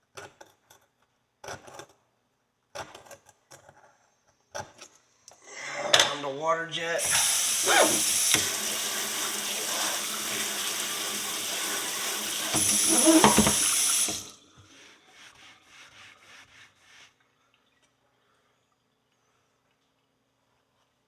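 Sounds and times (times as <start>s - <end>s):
water jet spraying into sink: 7.0s - 14.4s.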